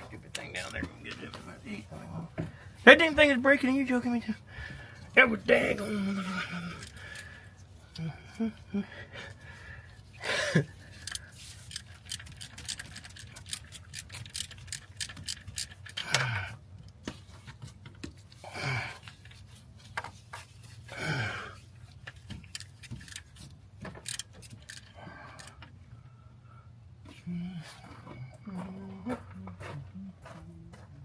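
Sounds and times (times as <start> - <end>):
person grunting with effort: 5.7 - 7.1, 21.0 - 21.6.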